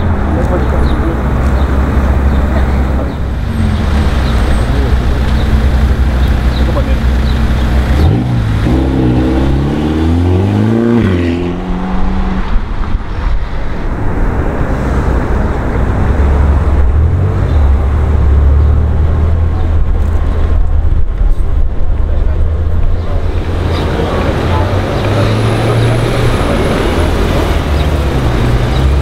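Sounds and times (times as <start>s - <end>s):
car engine revving: 0.0s - 20.9s, 22.1s - 29.0s
car engine rumbling by: 0.0s - 29.0s.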